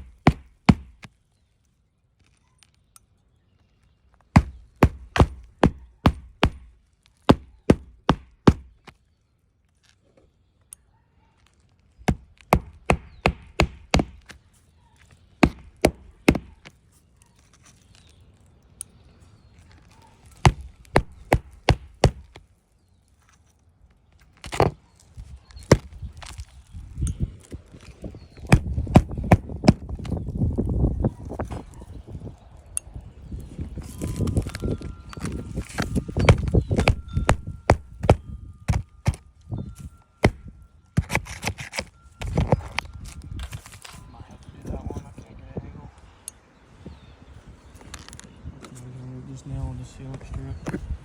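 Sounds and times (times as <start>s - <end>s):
hammer driving nails into shingles: 0.0s - 1.1s, 4.3s - 8.9s, 12.0s - 14.4s, 15.4s - 16.7s, 20.4s - 22.4s, 28.4s - 30.2s, 35.6s - 39.2s, 40.2s - 42.8s.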